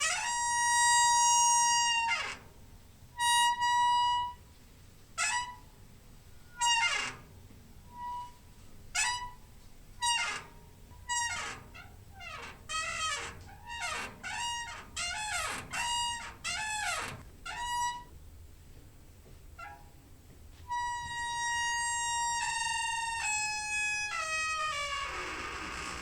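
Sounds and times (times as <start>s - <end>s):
squeaking door hinge: 0.0s - 2.5s, 5.2s - 5.7s, 6.5s - 18.1s, 19.6s - 20.0s, 20.7s - 26.0s.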